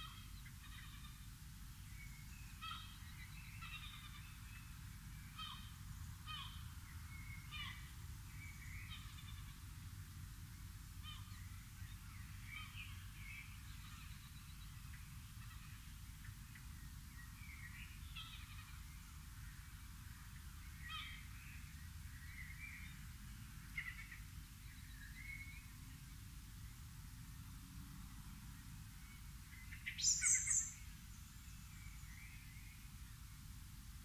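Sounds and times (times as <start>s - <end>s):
low steady rumble: 0.0s - 34.0s
wild birds calling: 2.6s - 4.4s, 23.7s - 25.4s, 29.5s - 30.9s.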